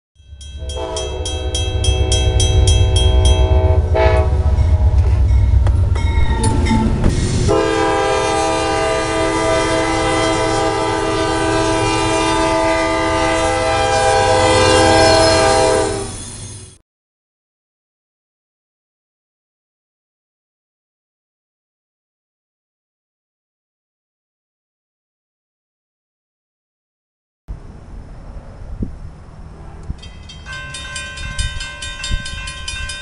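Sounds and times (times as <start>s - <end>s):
crossing bells ringing: 0.2s - 8.1s, 30.0s - 33.0s
locomotive engine rumble: 0.3s - 16.8s
train air horn blasts: 0.6s - 5.6s, 6.4s - 16.2s.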